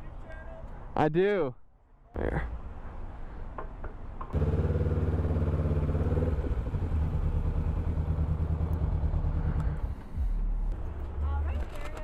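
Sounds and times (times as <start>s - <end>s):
motorcycle engine idling: 4.4s - 10.5s.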